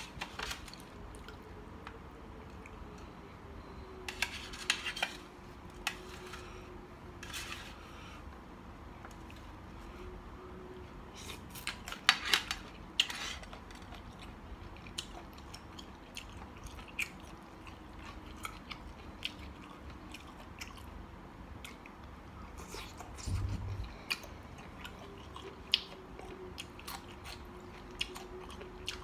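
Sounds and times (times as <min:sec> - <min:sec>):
person chewing food: 0:11.1 - 0:29.0.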